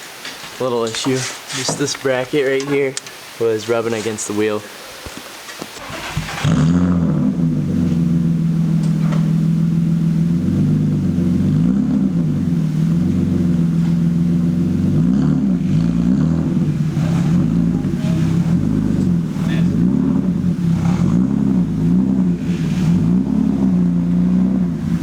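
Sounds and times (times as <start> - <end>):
car engine starting and running: 5.8 - 25.0.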